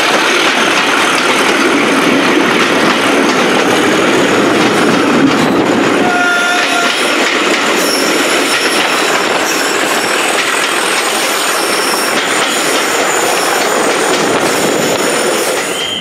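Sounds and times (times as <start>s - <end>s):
train wheels rattling on rails: 0.0s - 16.0s
high-pitched wheel squeal: 7.8s - 10.3s, 15.6s - 16.0s.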